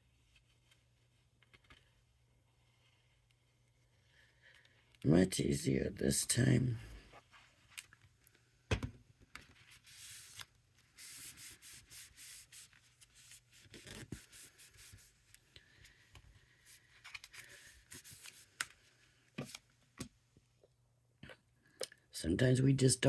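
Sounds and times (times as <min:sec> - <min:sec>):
paper rustling: 0:09.3 - 0:19.7.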